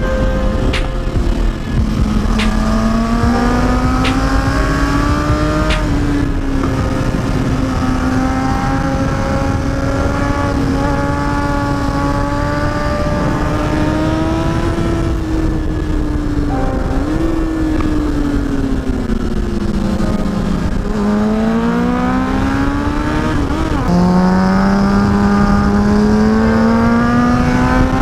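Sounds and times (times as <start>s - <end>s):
wind rumble on microphone: 0.0s - 28.0s
motorcycle engine pulling away: 1.2s - 28.0s
sharp clicks: 2.2s - 3.1s.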